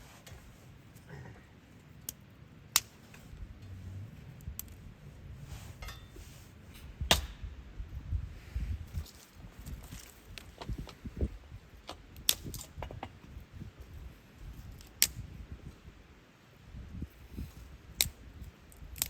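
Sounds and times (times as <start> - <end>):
sharp clicks and knocks: 11.8 - 13.4.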